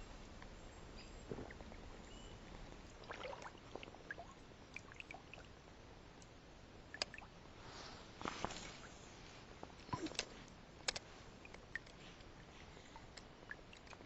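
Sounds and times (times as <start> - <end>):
water trickling and dripping: 1.2 - 5.6, 6.2 - 7.4, 11.4 - 14.0
light clicks and ticks: 9.8 - 12.3.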